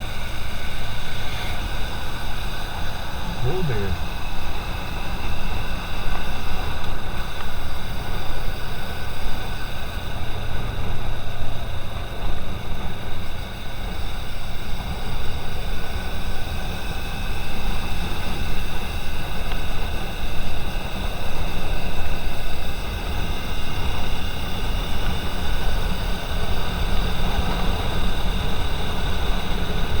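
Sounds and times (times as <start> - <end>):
car driving in traffic: 0.0 - 15.2.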